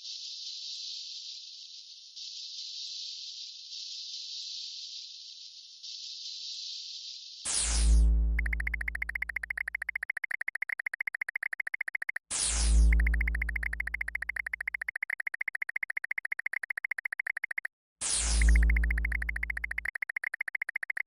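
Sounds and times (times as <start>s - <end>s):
rapid pulsing electronic buzz: 8.0s - 21.0s
falling electronic zap: 12.0s - 16.0s, 17.5s - 19.9s.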